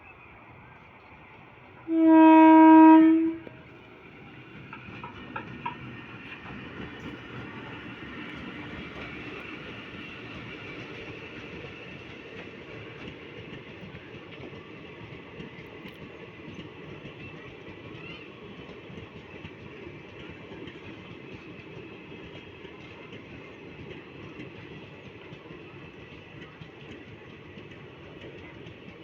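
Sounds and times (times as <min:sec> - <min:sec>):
train rumbling on rails: 0:00.0 - 0:29.0
train horn blast: 0:01.9 - 0:03.6.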